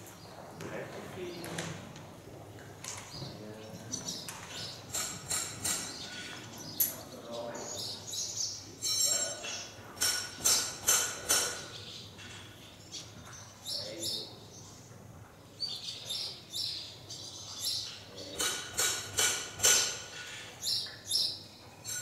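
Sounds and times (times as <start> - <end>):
small birds chirping: 0.0 - 22.0
sharp clicks and knocks: 4.3 - 6.0.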